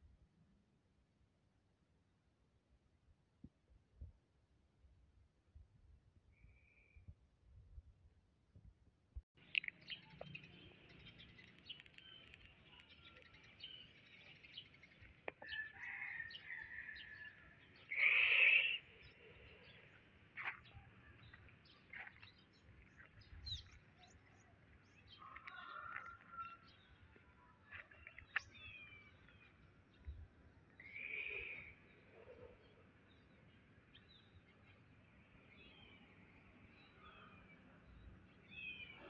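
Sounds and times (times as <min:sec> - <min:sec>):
birds chirping and calling: 0:09.4 - 0:17.1.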